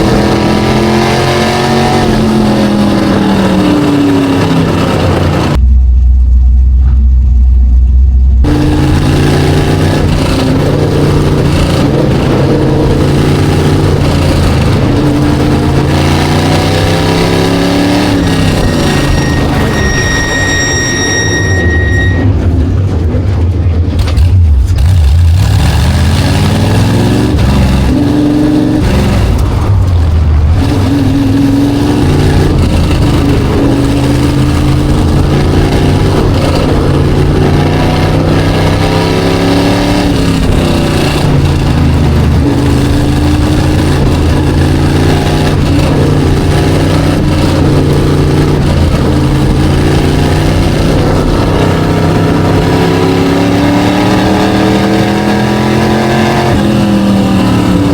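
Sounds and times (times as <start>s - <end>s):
race car engine revving: 0.0s - 57.9s.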